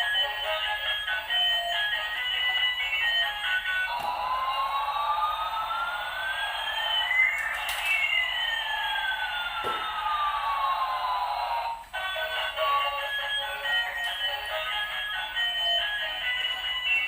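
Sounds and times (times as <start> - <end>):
rising and falling whines: 3.9 - 11.8.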